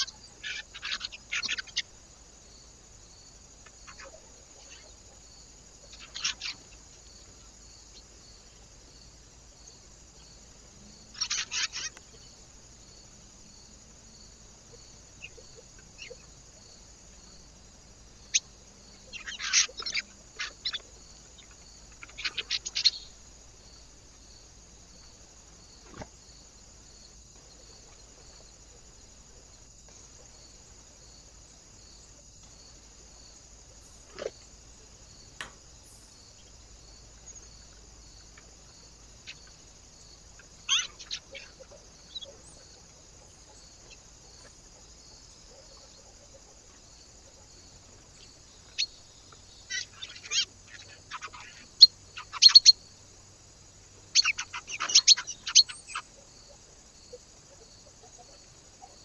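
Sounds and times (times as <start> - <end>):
small birds chirping: 0.0 - 26.1, 33.7 - 53.3, 54.0 - 59.0
faint steady hiss: 0.0 - 59.0
single clicks: 35.4 - 35.7.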